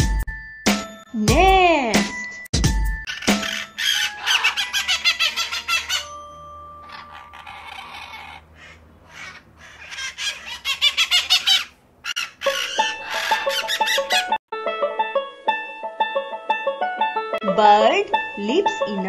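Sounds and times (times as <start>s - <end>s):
light music: 0.0s - 8.1s, 12.4s - 19.0s
bird chirping rapid high notes: 3.0s - 14.4s.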